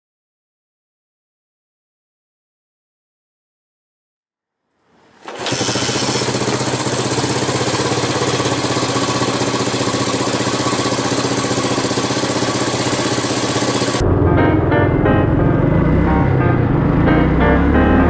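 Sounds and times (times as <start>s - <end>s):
motorcycle engine idling: 5.2s - 14.0s.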